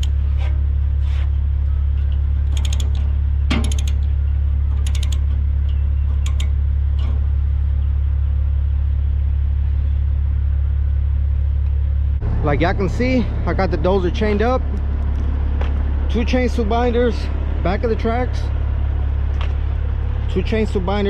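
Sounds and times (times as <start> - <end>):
diesel engine idling: 0.0 - 21.0
ratchet chain binder clicking: 2.4 - 4.1, 4.8 - 7.1.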